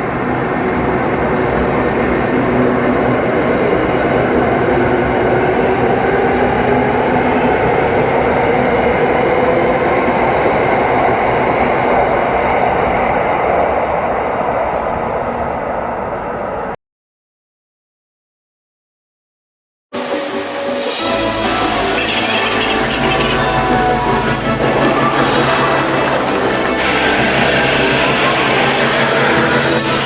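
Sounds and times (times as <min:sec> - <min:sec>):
train wheels rumbling on rails: 0:20.0 - 0:30.0
faint traction motor hum: 0:21.2 - 0:30.0.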